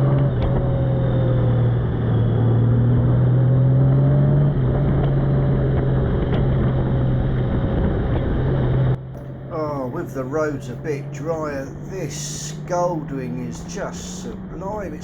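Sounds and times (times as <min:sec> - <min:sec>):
motorcycle engine humming: 0:00.0 - 0:15.0
road and wind noise: 0:00.0 - 0:15.0.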